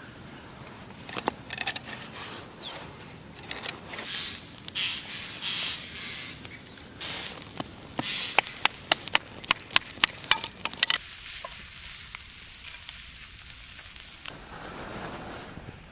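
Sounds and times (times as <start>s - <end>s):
fire crackling and popping: 0.0s - 15.9s
high sizzle: 10.7s - 15.2s.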